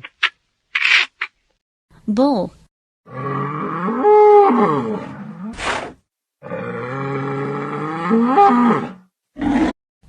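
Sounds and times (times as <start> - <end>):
bull mooing: 3.1 - 5.5, 6.4 - 9.7.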